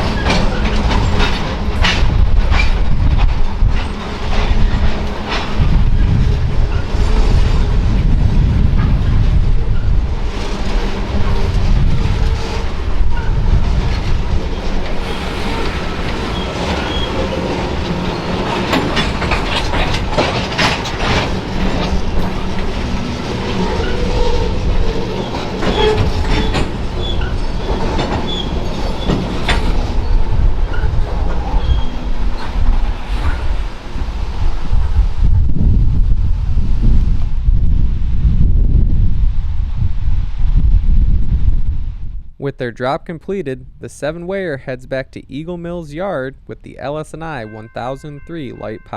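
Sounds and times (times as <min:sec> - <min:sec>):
wheels clicking over rail joints: 0:00.0 - 0:34.6
freight train rumble: 0:00.0 - 0:48.9
wheel squeals: 0:09.7 - 0:34.6.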